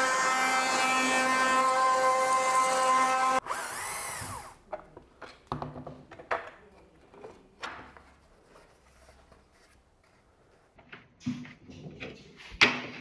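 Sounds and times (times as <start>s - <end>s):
router spinning down: 0.0s - 4.6s.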